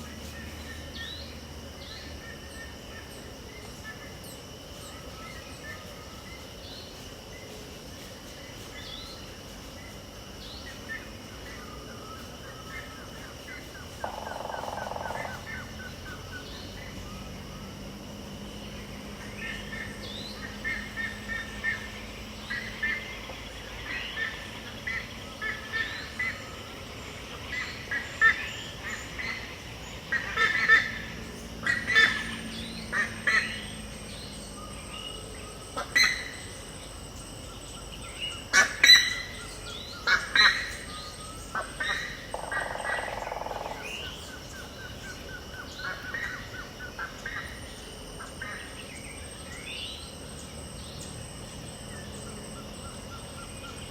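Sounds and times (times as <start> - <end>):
insects buzzing: 0.0 - 53.9
birds calling: 18.6 - 53.9.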